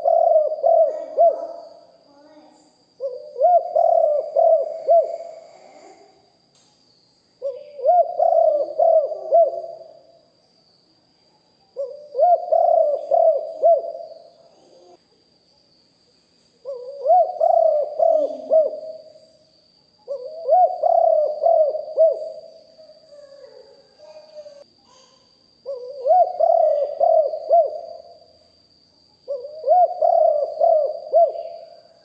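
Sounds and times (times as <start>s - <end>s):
dove cooing: 0.0s - 1.9s, 3.0s - 6.0s, 7.4s - 10.0s, 11.8s - 15.0s, 16.6s - 19.2s, 20.0s - 23.2s, 25.6s - 28.1s, 29.3s - 32.0s.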